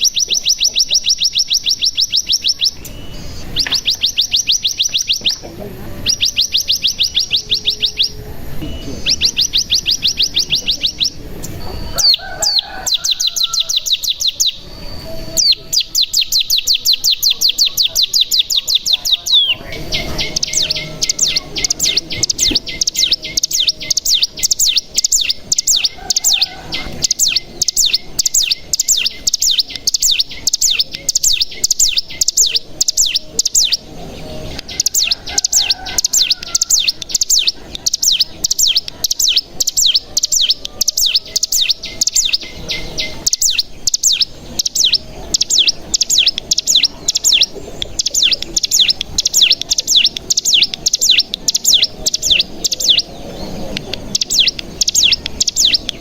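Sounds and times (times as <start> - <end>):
bird singing high sharp notes: 0.0 - 56.0.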